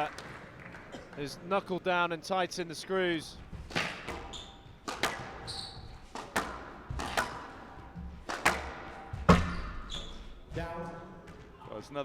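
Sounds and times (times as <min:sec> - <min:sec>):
squash ball cracks: 0:03.7 - 0:05.4, 0:06.1 - 0:07.6, 0:08.2 - 0:09.6
shoe squeak: 0:04.1 - 0:04.8, 0:05.4 - 0:06.1, 0:09.3 - 0:10.5.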